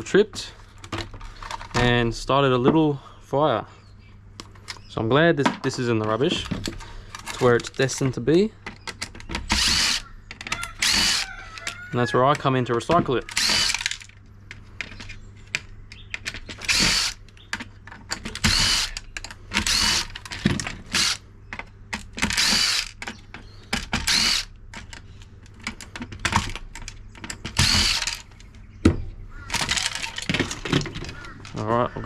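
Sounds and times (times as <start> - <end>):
power drill backing out screws: 9.4 - 10.0, 10.7 - 11.2, 12.3 - 14.1, 16.3 - 17.2, 18.1 - 21.2, 22.0 - 23.2, 23.8 - 25.0, 25.7 - 28.3, 29.5 - 31.3.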